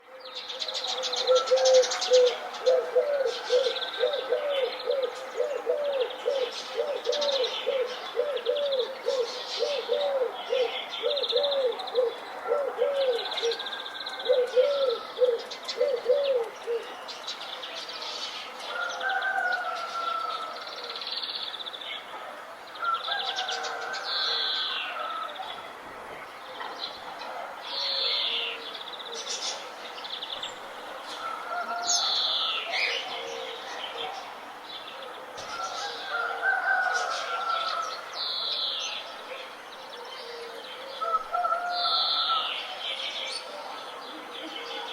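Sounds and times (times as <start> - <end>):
birds chirping and trilling: 0.2 - 22.1.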